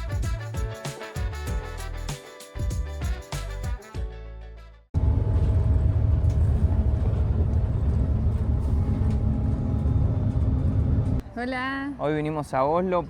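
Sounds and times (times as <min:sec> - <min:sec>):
background music: 0:00.0 - 0:04.9
steady low rumble: 0:05.0 - 0:11.2.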